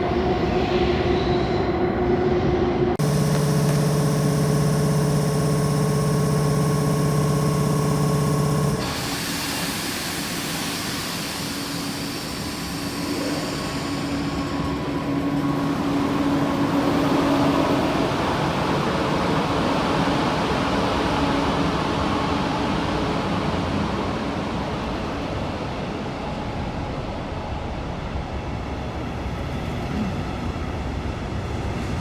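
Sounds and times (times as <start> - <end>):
train whine: 0.0 - 32.0
train rushing and rolling: 8.2 - 32.0.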